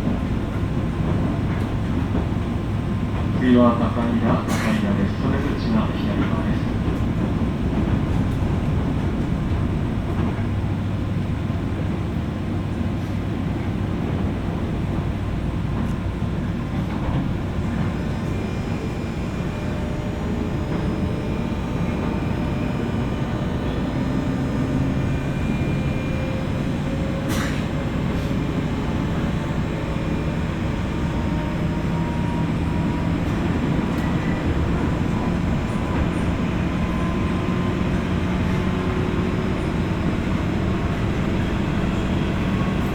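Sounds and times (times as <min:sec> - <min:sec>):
train wheels rumbling on rail: 0:00.0 - 0:42.9
traction motor hum rising: 0:18.0 - 0:42.9.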